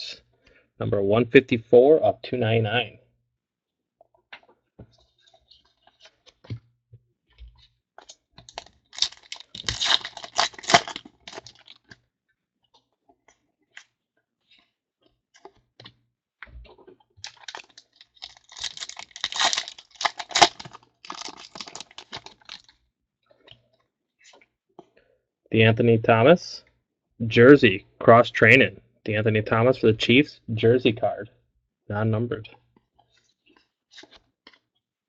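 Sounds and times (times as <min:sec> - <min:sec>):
crackly rustling: 0:07.5 - 0:12.0, 0:16.7 - 0:22.8
foil packs tearing: 0:08.5 - 0:11.8, 0:17.2 - 0:22.7.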